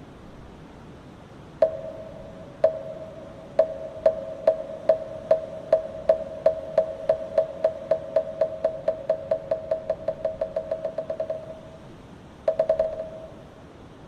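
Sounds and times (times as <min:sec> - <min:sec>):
wooden fish knocks: 0:03.6 - 0:11.6.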